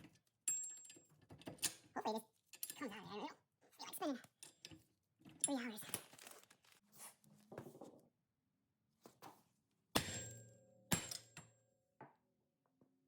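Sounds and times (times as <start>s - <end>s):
hammer striking metal tool: 10.0s - 11.4s.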